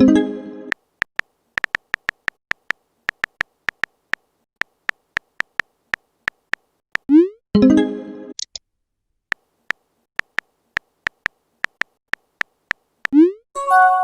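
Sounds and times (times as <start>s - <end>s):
phone keyboard taps: 0.7s - 7.1s, 9.3s - 13.2s.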